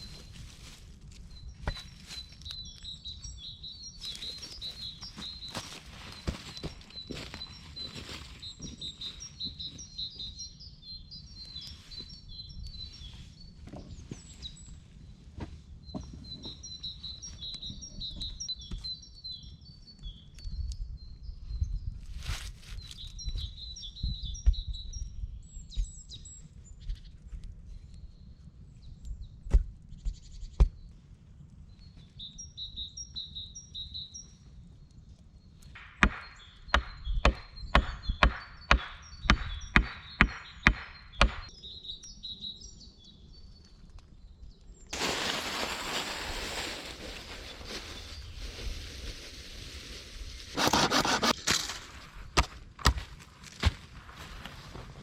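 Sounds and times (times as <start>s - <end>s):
bird chirping: 1.3s - 14.8s, 35.4s - 44.9s
sharp knocks: 35.8s - 41.5s.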